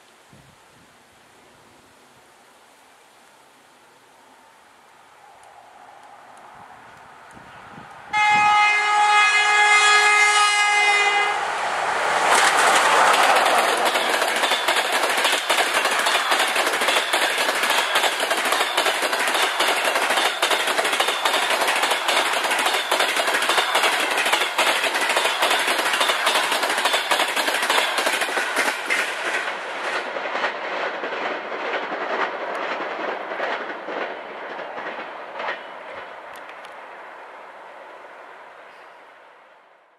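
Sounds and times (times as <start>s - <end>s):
train rushing noise: 4.9s - 38.6s
train wheels clattering over joints: 12.2s - 36.1s.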